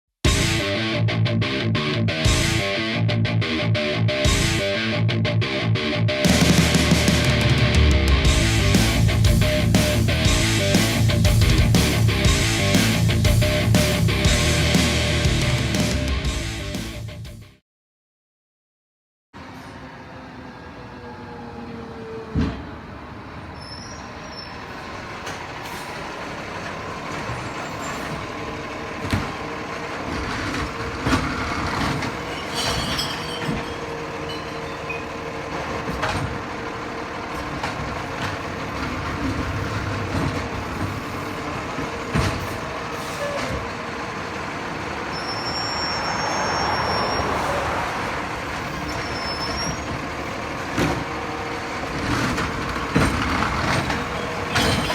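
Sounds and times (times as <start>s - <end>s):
garbage truck running: 6.2s - 16.6s, 19.4s - 54.9s
sharp knocks and bangs: 29.0s - 33.9s.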